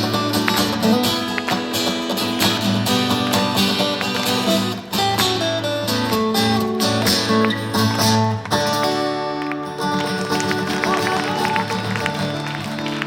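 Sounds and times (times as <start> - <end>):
guitars strumming and picking: 0.0 - 13.0.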